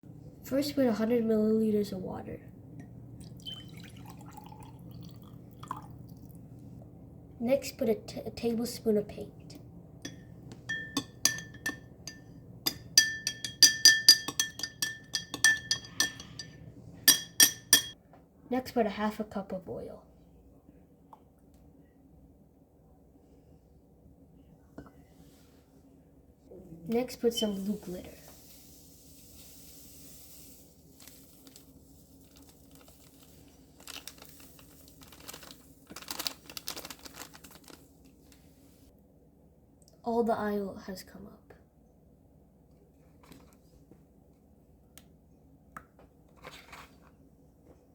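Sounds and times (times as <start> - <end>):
spoon clinking against glass: 10.1 - 18.0
glitter container crinkling: 27.5 - 38.7.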